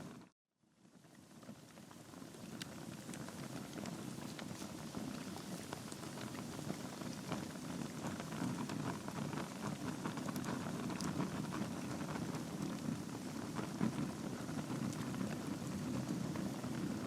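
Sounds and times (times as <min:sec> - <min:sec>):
log fire crackling and popping: 0:01.3 - 0:17.0
low rush of flame: 0:01.3 - 0:17.0.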